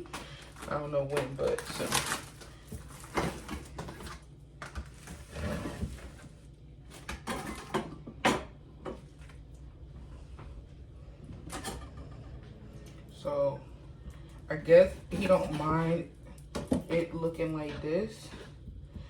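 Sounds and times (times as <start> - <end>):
kitchen items knocking and clicking: 0.0 - 6.2, 6.9 - 9.1, 16.4 - 17.9.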